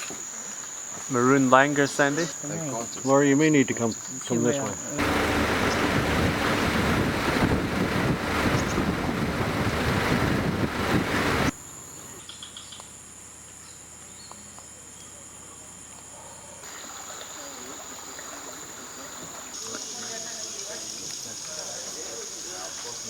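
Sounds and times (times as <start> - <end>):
insects trilling: 0.0 - 23.0
loud rushing noise: 5.0 - 11.5.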